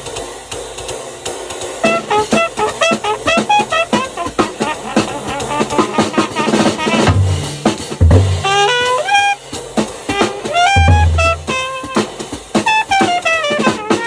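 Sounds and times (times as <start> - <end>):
drum kit: 0.0 - 14.0
horn melody: 1.8 - 14.0
bass: 7.1 - 8.8, 10.8 - 11.7.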